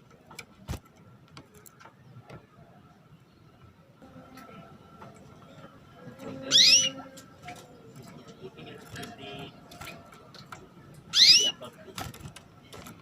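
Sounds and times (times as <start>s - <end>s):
faint scattered clicks: 0.0s - 2.6s, 7.1s - 13.0s
canary call notes: 6.5s - 7.1s, 11.1s - 11.6s.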